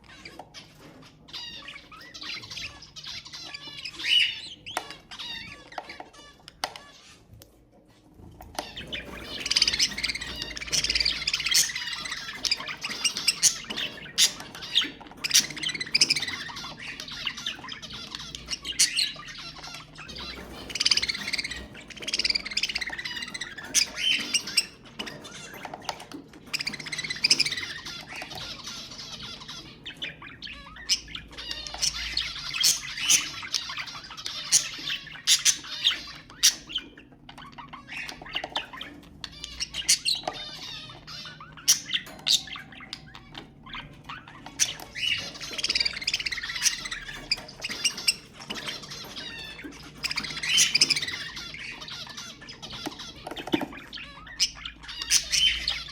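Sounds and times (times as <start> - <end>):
budgerigars chattering and warbling: 0.0 - 55.9.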